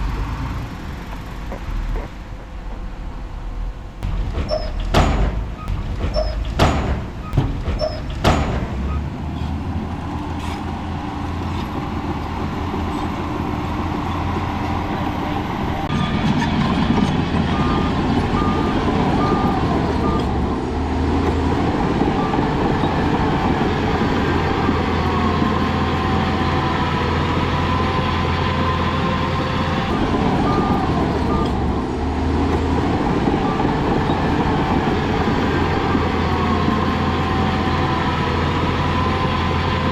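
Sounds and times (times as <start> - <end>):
heavy diesel machinery running: 0.0 - 39.9
sharp metallic clanks: 4.0 - 9.5
reversing alarm beeping: 4.1 - 8.1, 17.4 - 20.4, 29.9 - 31.7.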